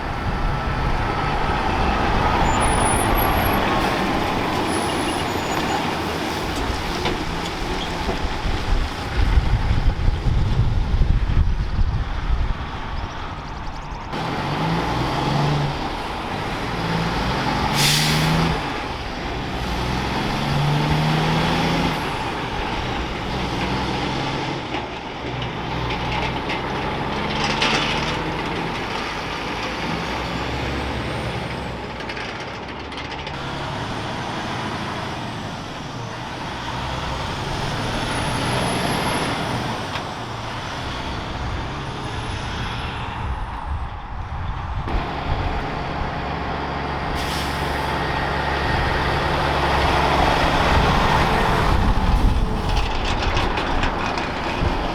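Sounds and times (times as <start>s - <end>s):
diesel trucks passing: 0.0s - 54.9s
air brake hiss: 17.7s - 18.4s, 47.2s - 48.0s.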